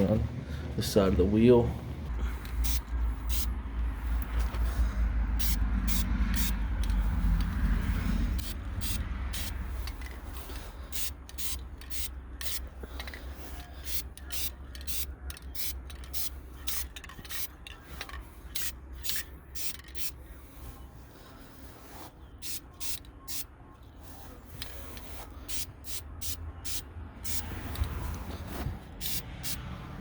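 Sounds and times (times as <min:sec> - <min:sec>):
spray paint can hissing bursts: 0:02.6 - 0:03.5, 0:05.4 - 0:07.6, 0:08.3 - 0:12.7, 0:13.8 - 0:17.5, 0:18.5 - 0:20.2, 0:22.4 - 0:28.0, 0:29.0 - 0:29.6.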